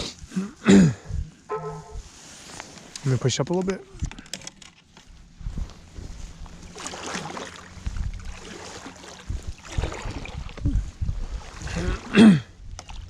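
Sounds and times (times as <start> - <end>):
kayak paddle swishing through water: 5.4 - 13.0.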